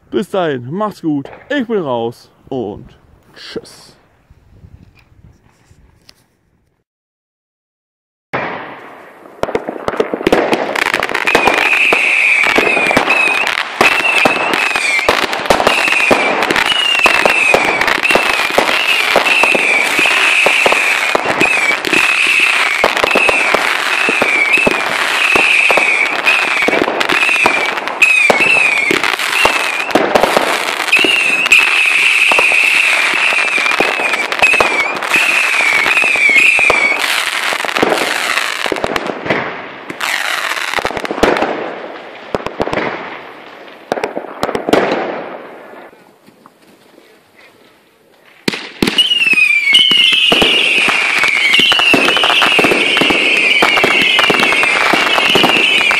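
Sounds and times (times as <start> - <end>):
fireworks crackling and bangs: 8.4 - 47.0, 47.6 - 55.9
high wavering whistle: 49.0 - 50.3.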